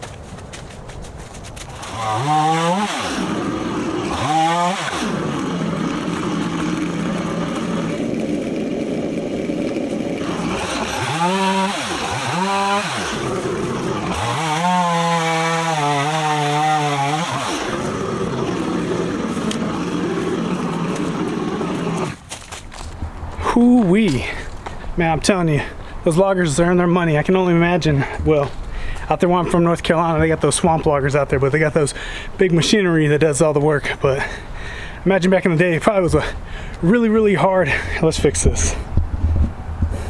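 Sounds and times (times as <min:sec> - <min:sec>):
chainsaw idling and revving: 0:01.7 - 0:22.3.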